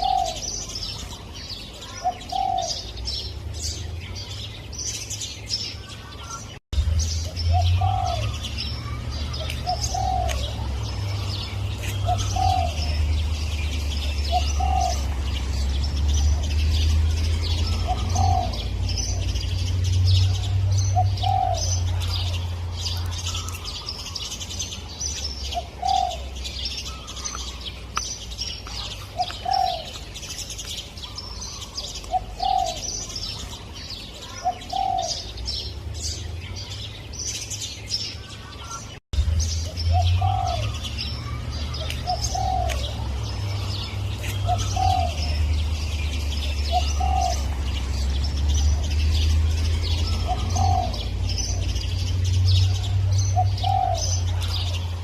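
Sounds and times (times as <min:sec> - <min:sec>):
dove cooing: 0:00.0 - 0:01.0, 0:01.7 - 0:03.0, 0:07.5 - 0:13.3, 0:14.0 - 0:15.7, 0:17.2 - 0:19.6, 0:20.2 - 0:24.2, 0:25.4 - 0:27.3, 0:28.8 - 0:30.2, 0:31.1 - 0:33.5, 0:34.2 - 0:35.4, 0:39.9 - 0:45.8, 0:46.4 - 0:48.0, 0:49.9 - 0:51.8, 0:52.7 - 0:54.8
small birds chirping: 0:00.0 - 0:55.0.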